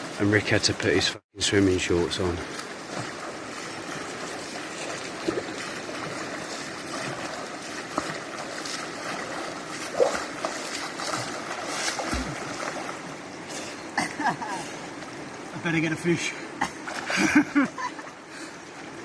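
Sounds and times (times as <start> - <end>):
river water rushing: 0.0 - 19.0
splashes of person in water: 2.6 - 13.1.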